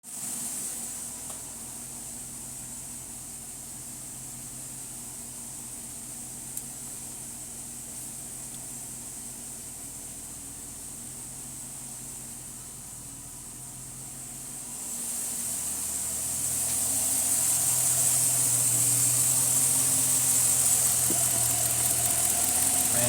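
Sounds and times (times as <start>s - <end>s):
constant hiss: 0.1s - 23.0s
car engine idling: 0.2s - 23.0s.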